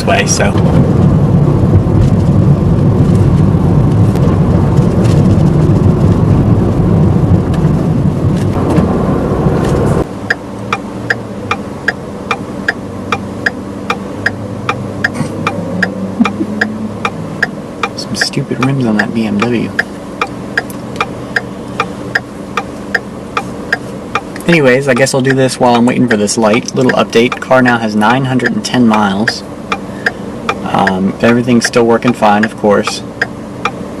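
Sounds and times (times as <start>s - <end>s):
car engine running: 0.0s - 34.0s
road noise: 0.0s - 34.0s
turn signal clicking: 9.7s - 33.9s.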